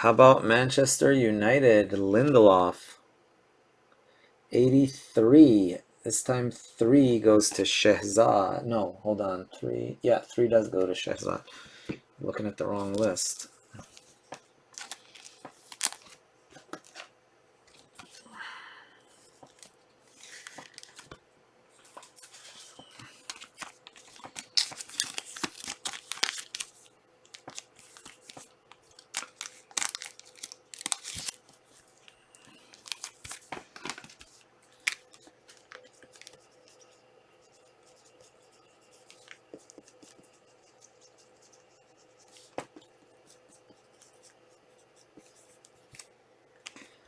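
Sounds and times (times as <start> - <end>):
foil wrappers tearing and crinkling: 14.8 - 16.2, 19.5 - 21.1, 23.2 - 31.6, 32.5 - 36.4.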